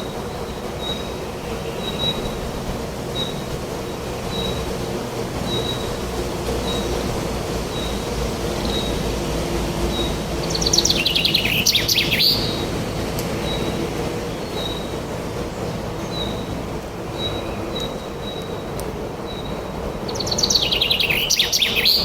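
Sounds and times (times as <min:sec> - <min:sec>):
fast twittering bird song: 0:00.0 - 0:02.4, 0:09.8 - 0:22.0
wild birds singing: 0:00.0 - 0:22.0.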